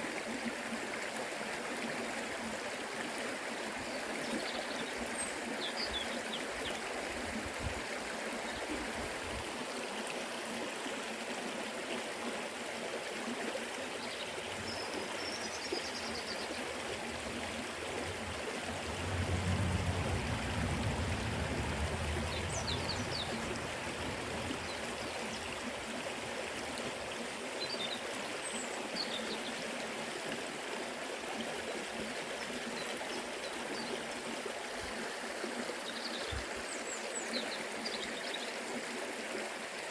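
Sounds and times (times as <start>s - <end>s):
river water rushing: 12.5s - 29.0s.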